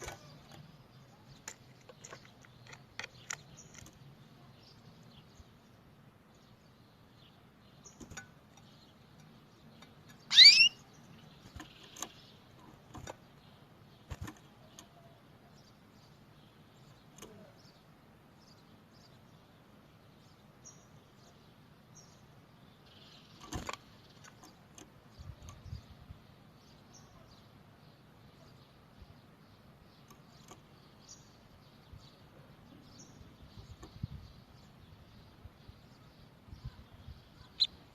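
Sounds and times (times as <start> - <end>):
small clicks: 1.3 - 4.1
canary call sweeping up: 10.3 - 10.8
faint chirps: 26.6 - 37.9.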